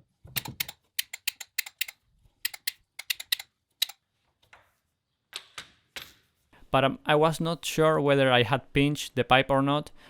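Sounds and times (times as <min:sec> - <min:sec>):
pipe bender clicking and tapping: 0:00.4 - 0:04.0.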